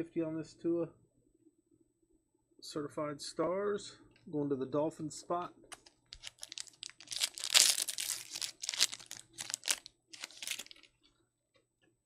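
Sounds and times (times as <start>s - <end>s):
foil wrapper tearing and crinkling: 6.2s - 10.9s.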